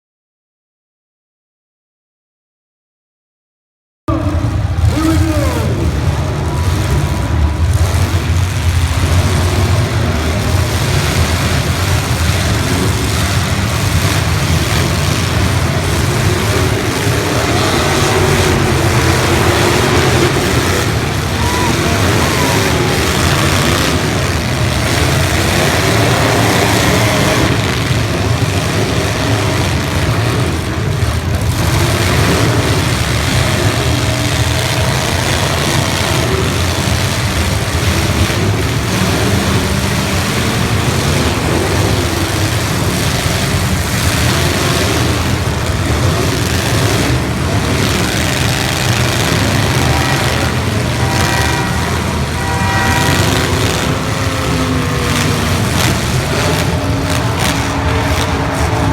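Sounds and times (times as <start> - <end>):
car engines revving together: 4.1 - 58.9.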